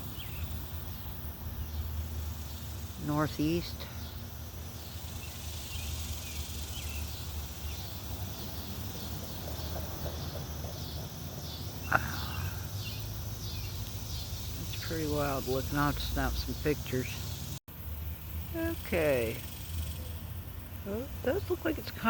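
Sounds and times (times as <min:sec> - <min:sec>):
cicadas chirping: 0:00.0 - 0:22.0.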